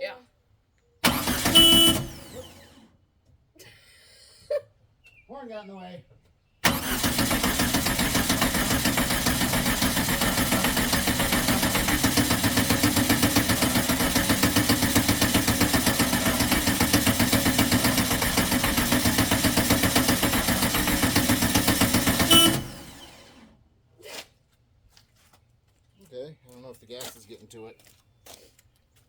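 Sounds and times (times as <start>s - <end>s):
starter cranking engine: 1.0s - 2.8s, 6.6s - 23.5s.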